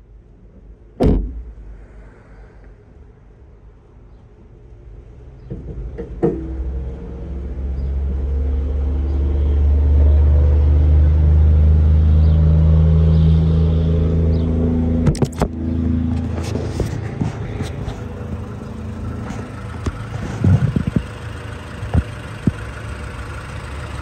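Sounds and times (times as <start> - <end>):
sharp knock: 1.0 - 1.6
car engine running: 13.7 - 24.0.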